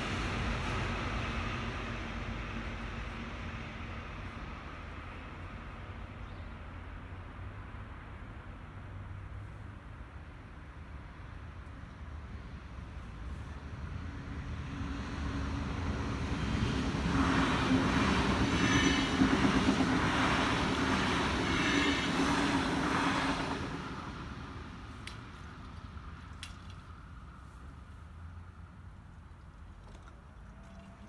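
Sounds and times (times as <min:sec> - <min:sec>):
electric train passing: 0:00.0 - 0:05.8, 0:13.7 - 0:24.9.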